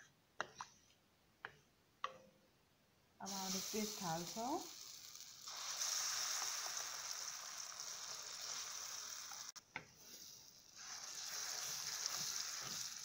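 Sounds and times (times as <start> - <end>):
paste sizzling in hot ghee: 3.2 - 13.0.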